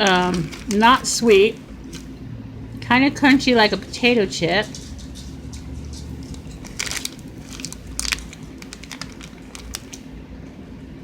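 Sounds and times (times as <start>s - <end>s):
chewing crunchy snack: 5.7s - 10.1s.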